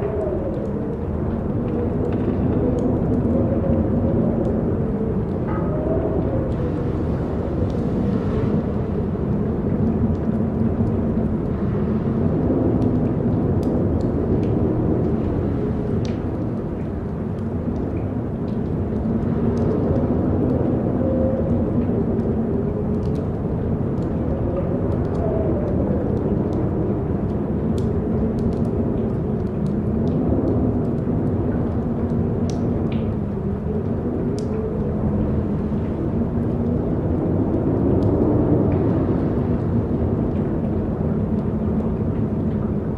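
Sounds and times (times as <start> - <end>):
strong wind rumble: 0.0 - 42.9
faint ticks: 32.0 - 33.2.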